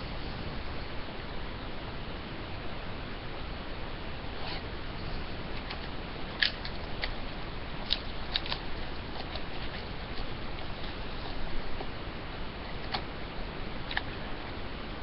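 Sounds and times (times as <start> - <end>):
steady hiss: 0.0 - 15.0
wrapping and cardboard crackling: 7.8 - 12.0.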